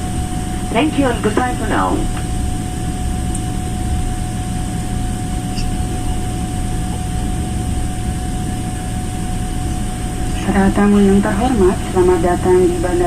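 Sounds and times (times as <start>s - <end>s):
air conditioning: 0.0s - 13.0s
low rumble of engines: 0.0s - 13.0s
thin steady hum: 0.0s - 13.0s.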